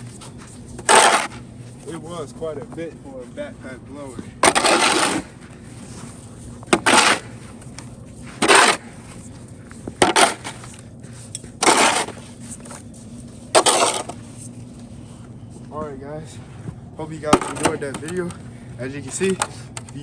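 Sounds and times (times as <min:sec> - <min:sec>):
harsh scraping bursts: 0:00.0 - 0:01.4, 0:04.4 - 0:09.2, 0:10.0 - 0:10.8, 0:11.6 - 0:12.8, 0:13.5 - 0:14.5, 0:17.3 - 0:18.3
faint steady hum: 0:00.0 - 0:20.0.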